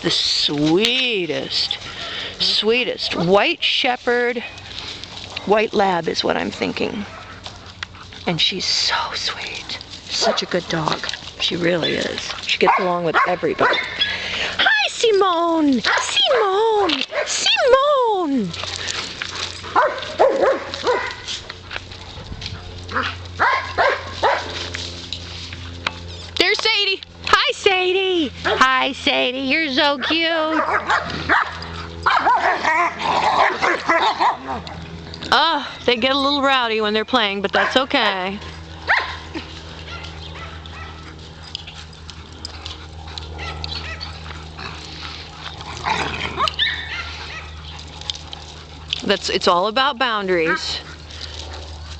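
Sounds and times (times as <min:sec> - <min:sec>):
steady low hum: 0:00.0 - 0:51.9
dogs yelping while playing: 0:11.7 - 0:14.8, 0:15.8 - 0:25.0, 0:30.0 - 0:35.1, 0:37.5 - 0:51.9
dog barking: 0:12.6 - 0:13.9, 0:19.8 - 0:21.2, 0:23.4 - 0:24.5, 0:30.5 - 0:31.5, 0:32.1 - 0:34.6, 0:38.9 - 0:39.2.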